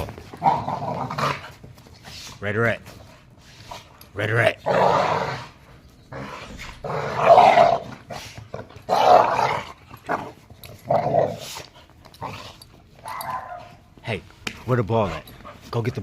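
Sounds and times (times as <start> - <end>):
puppy growling: 0.0 - 1.5, 4.6 - 13.7.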